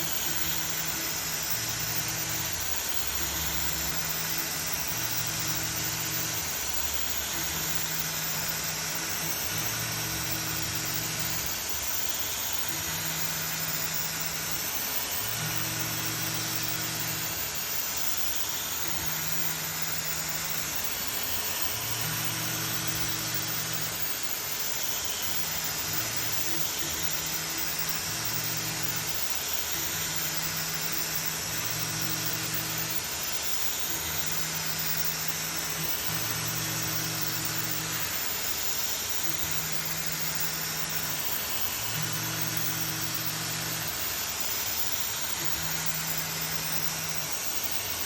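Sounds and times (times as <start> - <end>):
milling machine hiss: 0.0 - 48.0.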